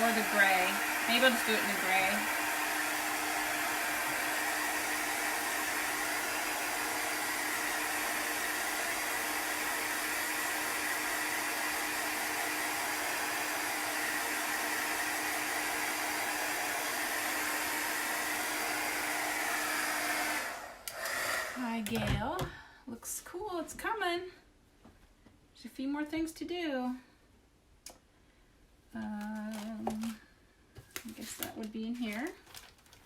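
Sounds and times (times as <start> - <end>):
electric dryer blowing: 0.0 - 22.5.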